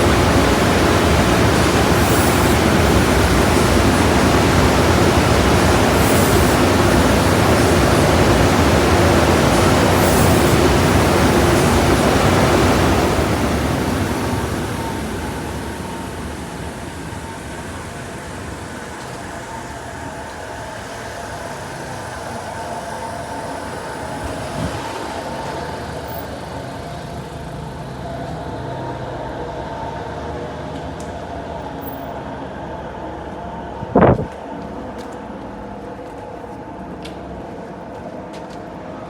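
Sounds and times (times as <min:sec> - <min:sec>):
car wash rushing water or air: 0:00.0 - 0:28.3, 0:33.8 - 0:34.4
car wash machinery rumble: 0:00.0 - 0:39.0.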